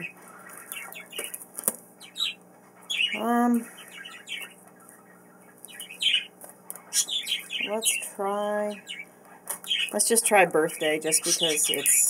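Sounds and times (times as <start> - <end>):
pet birds chirping and squawking: 0.0 - 12.0.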